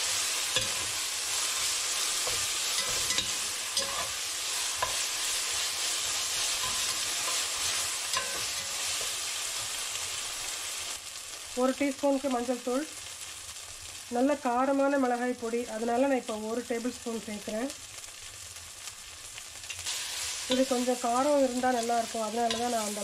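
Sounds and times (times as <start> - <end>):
onions sizzling in oil: 0.0 - 23.0
metal spoon scraping a pot: 2.3 - 4.2.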